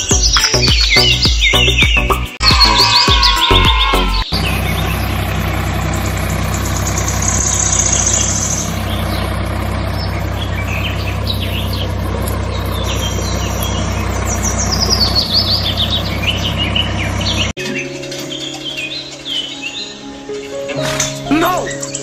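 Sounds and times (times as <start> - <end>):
birds chirping: 0.0 - 22.0
tractor engine idling: 2.4 - 17.6.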